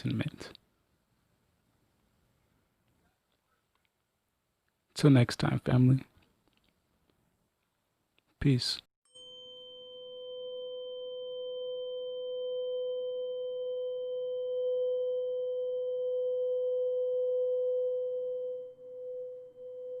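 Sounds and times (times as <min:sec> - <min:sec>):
steady ringing tone: 0:09.1 - 0:20.0.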